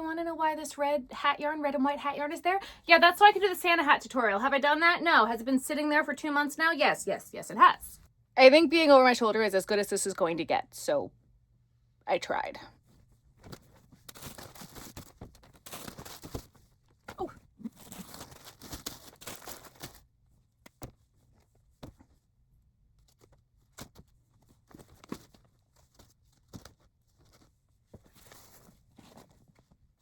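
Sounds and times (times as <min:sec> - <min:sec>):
packaging rustling and crinkling: 0:13.4 - 0:20.1, 0:23.0 - 0:29.9.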